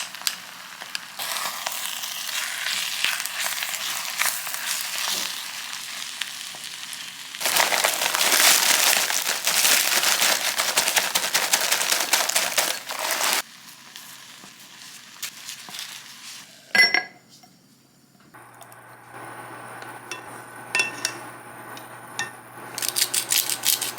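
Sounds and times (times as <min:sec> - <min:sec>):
food sizzling in a pan: 0:00.0 - 0:16.8, 0:18.4 - 0:23.9
metallic utensil clink: 0:20.1 - 0:21.3, 0:22.2 - 0:23.9.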